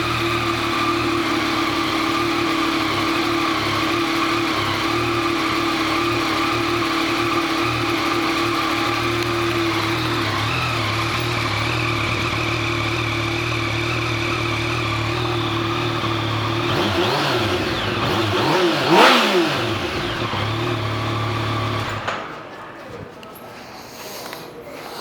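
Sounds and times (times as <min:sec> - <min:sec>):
motorcycle engine idling: 0:00.0 - 0:22.1
motorcycle throttle blips: 0:00.0 - 0:22.4.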